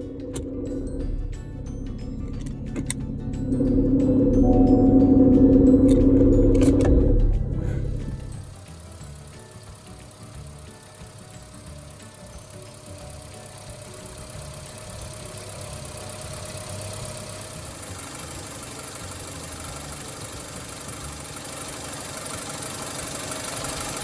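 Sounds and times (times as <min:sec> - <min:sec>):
steady tone: 0:00.0 - 0:08.6
car engine idling: 0:00.0 - 0:24.0.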